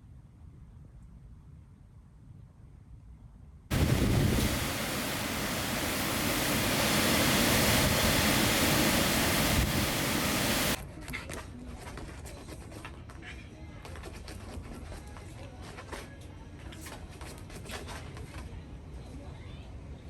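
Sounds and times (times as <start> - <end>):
heavy rain: 3.7 - 10.8
strong wind: 3.7 - 10.8.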